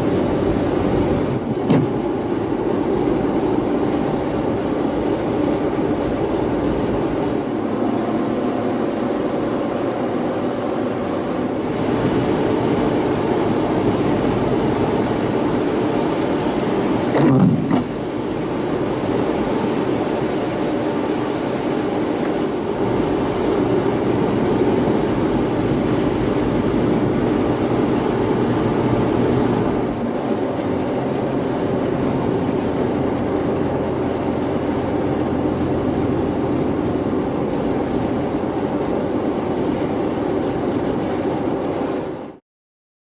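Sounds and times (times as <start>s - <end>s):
engine and road noise: 0.0s - 42.4s
short loud knocks: 1.6s - 2.0s, 17.2s - 18.0s.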